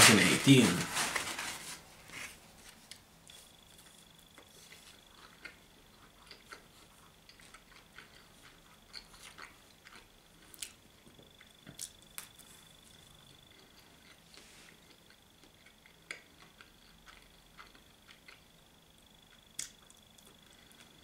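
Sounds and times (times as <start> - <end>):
chewing and wet mouth clicks: 4.3 - 12.3, 13.5 - 18.5, 19.3 - 20.4.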